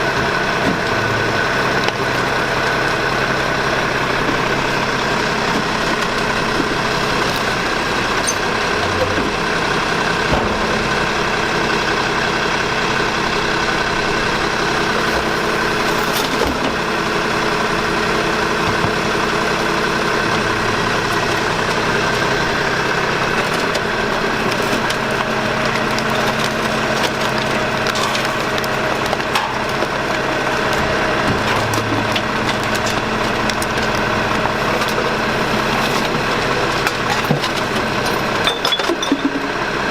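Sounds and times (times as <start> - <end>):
garbage truck engine droning: 0.0 - 39.9
refuse clunking: 3.9 - 13.1.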